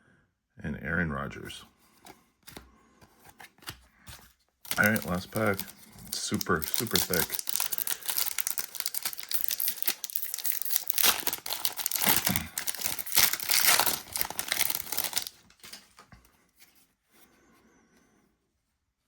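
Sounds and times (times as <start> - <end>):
cards clicking: 2.0 - 15.9
foil wrapper crinkling and tearing: 4.6 - 15.9.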